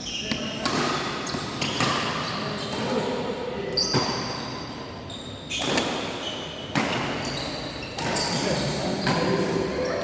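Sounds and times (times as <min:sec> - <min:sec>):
shoes squeaking on court: 0:00.0 - 0:03.1, 0:03.7 - 0:10.0
racket hitting shuttlecock: 0:00.3 - 0:03.2, 0:05.6 - 0:07.3, 0:07.9 - 0:08.3.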